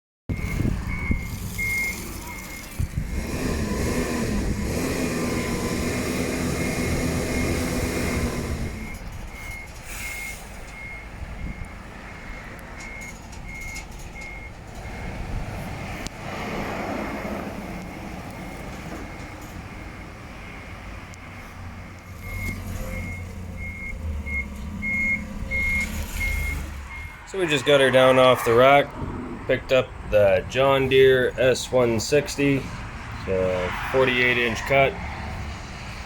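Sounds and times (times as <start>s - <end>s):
reversing alarm beeping: 0.3s - 15.2s, 17.9s - 28.6s
vehicle engine running: 0.4s - 9.0s.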